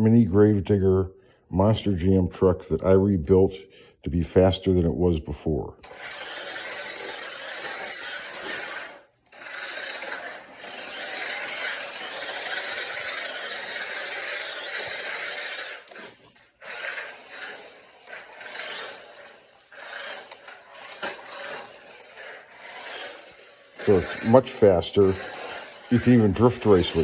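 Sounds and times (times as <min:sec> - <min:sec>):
toy truck electric motor whirring: 0:05.8 - 0:27.0.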